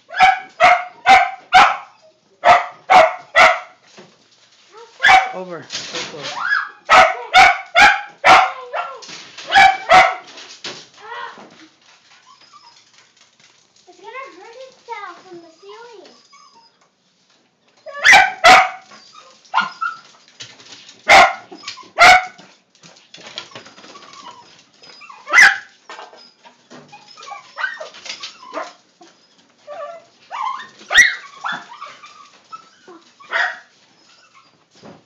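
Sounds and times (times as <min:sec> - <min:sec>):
dog barking: 0:00.1 - 0:03.8, 0:05.0 - 0:05.4, 0:06.5 - 0:10.3, 0:18.0 - 0:18.9, 0:21.1 - 0:22.4, 0:25.3 - 0:25.7, 0:33.3 - 0:33.7.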